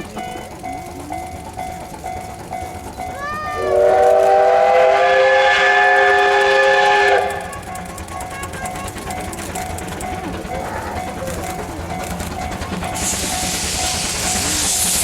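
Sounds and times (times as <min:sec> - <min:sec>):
steam whistle blast: 0:03.6 - 0:07.6.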